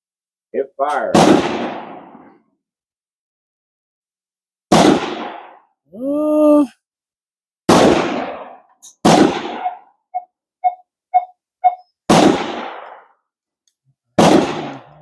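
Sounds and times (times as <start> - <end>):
gunshots with echo: 0.9 - 2.3, 4.7 - 5.6, 7.7 - 9.9, 12.1 - 13.0, 14.2 - 15.0
short beeps: 9.6 - 12.0.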